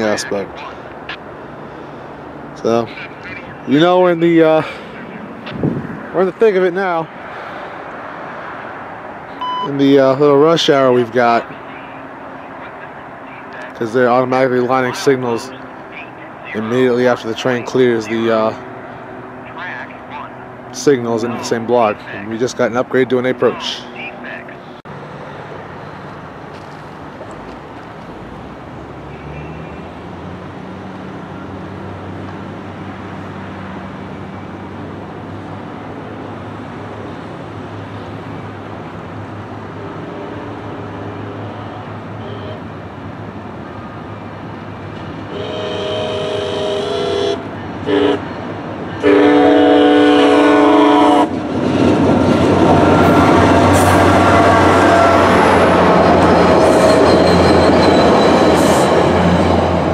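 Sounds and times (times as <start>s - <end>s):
diesel train engine rumble: 0.0s - 59.9s
train horn blasts: 41.5s - 42.6s, 45.3s - 48.4s, 49.0s - 51.4s, 52.9s - 55.7s
train rolling past: 44.4s - 59.9s.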